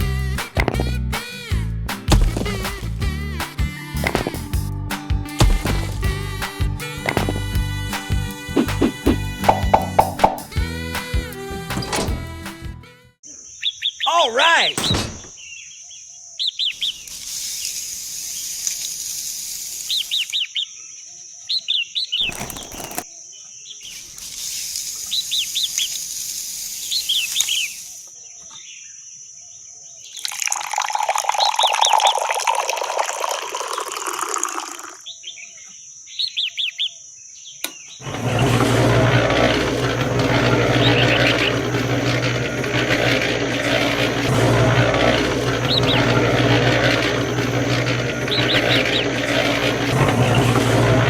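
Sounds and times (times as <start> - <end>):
small birds chirping: 13.2 - 30.4, 35.0 - 38.0.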